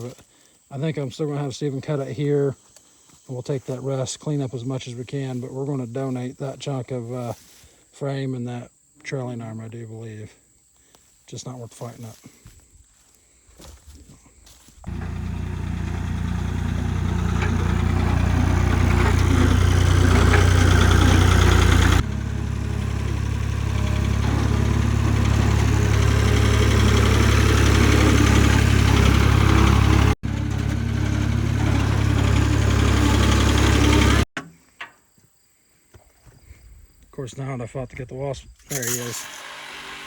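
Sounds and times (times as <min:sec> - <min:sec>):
engine idling: 0:14.8 - 0:34.3.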